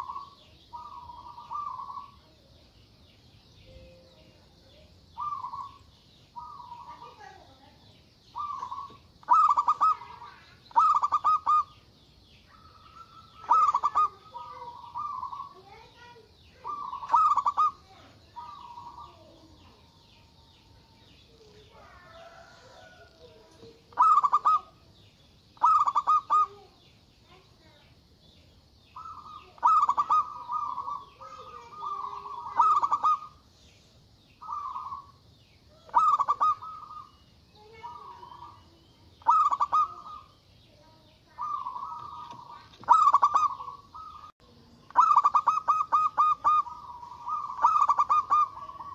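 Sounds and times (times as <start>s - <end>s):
dove staccato cooing: 0.0s - 2.2s, 5.2s - 7.3s, 8.3s - 11.8s, 12.5s - 15.7s, 16.6s - 19.8s, 21.6s - 24.9s, 25.6s - 26.6s, 29.0s - 33.4s, 34.4s - 35.2s, 35.8s - 40.3s, 41.3s - 48.9s
faint drawn-out dove coos: 0.0s - 2.4s, 4.7s - 7.4s, 8.4s - 11.7s, 12.5s - 15.8s, 16.6s - 24.9s, 25.6s - 26.7s, 29.0s - 33.4s, 34.4s - 35.1s, 35.7s - 44.3s, 44.9s - 48.9s.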